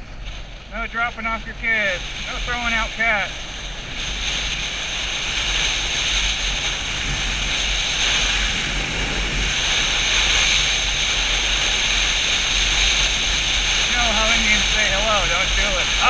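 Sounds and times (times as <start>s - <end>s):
motorcycle engine running: 0.0s - 16.0s
road noise: 0.0s - 16.0s
wind rush on microphone: 0.0s - 16.0s.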